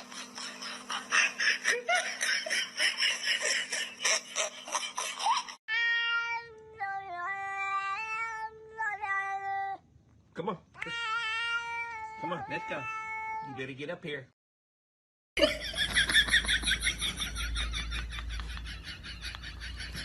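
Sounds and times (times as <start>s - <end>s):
cat meowing and yowling: 10.8s - 13.5s.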